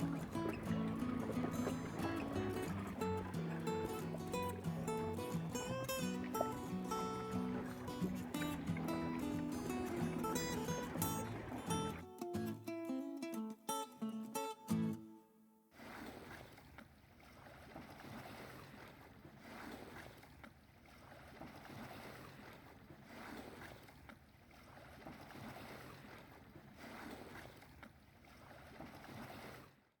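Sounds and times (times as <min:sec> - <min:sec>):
light wind: 0:00.0 - 0:12.0
water lapping against boat hull: 0:00.0 - 0:12.6, 0:15.7 - 0:30.0.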